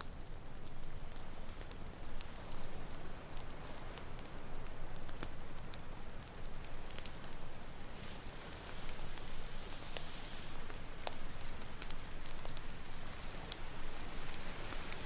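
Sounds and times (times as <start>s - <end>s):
campfire crackling and popping: 0.0s - 15.0s
ocean surf hissing: 8.3s - 11.0s, 13.4s - 15.0s.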